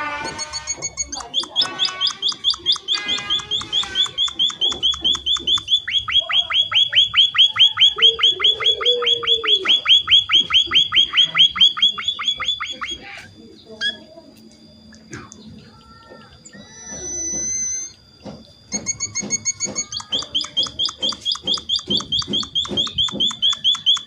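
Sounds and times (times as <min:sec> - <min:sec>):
songbird calling in fast notes: 0:00.2 - 0:14.0, 0:18.7 - 0:24.0.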